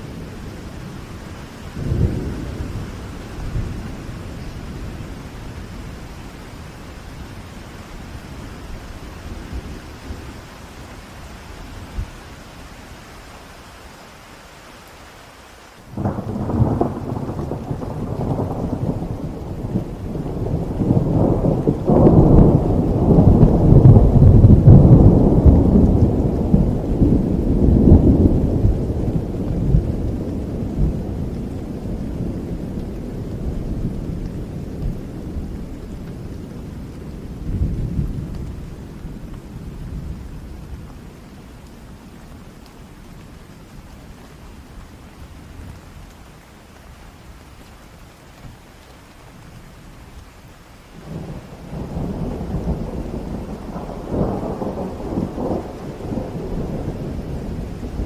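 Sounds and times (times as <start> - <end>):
thunder rumbling: 0.0 - 11.0, 15.9 - 43.6, 51.0 - 58.0
steady rain: 0.0 - 58.0.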